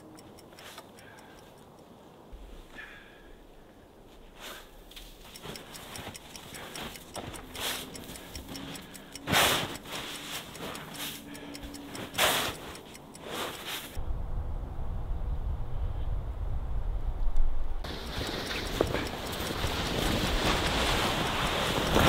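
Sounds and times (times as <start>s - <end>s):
clock ticking: 0.0s - 1.9s, 5.1s - 14.0s, 17.8s - 22.0s
snow shovel scraping snow: 9.3s - 11.2s, 12.1s - 14.0s, 18.0s - 22.0s.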